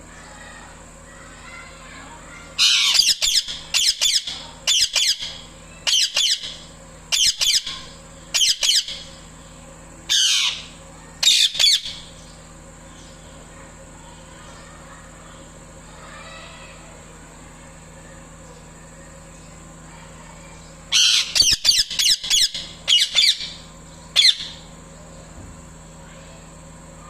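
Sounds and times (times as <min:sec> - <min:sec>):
parakeet shrill calls: 0:02.6 - 0:09.1, 0:10.1 - 0:12.1, 0:20.9 - 0:23.6, 0:24.2 - 0:24.6.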